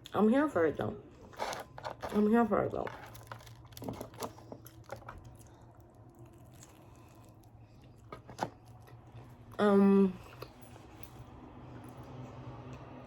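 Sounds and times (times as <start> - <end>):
faint chewing: 4.2 - 9.6.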